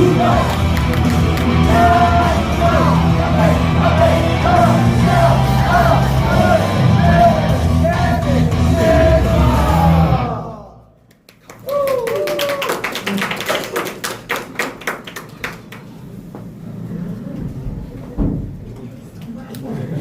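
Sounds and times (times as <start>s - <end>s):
voices singing and shouting: 0.0s - 10.9s.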